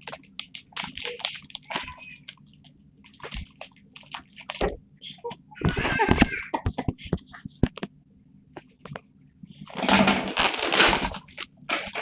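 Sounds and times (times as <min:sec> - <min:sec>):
packaging rustling and crinkling: 0:09.7 - 0:12.0.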